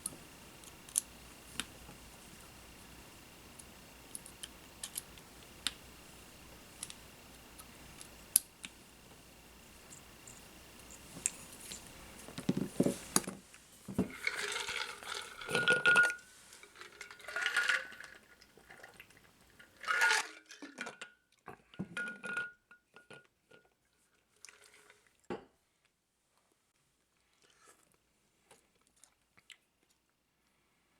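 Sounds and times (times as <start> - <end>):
small tools clinking and rattling: 14.0 - 18.3.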